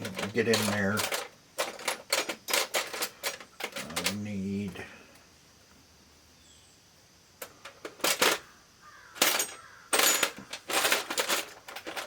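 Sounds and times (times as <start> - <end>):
small hard objects clattering: 0.0 - 4.2, 7.4 - 8.5, 9.1 - 12.0.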